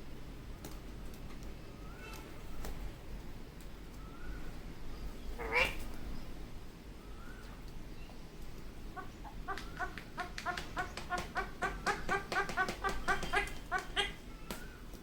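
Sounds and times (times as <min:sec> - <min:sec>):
parakeet chattering calls: 0:05.4 - 0:05.9, 0:08.9 - 0:14.2.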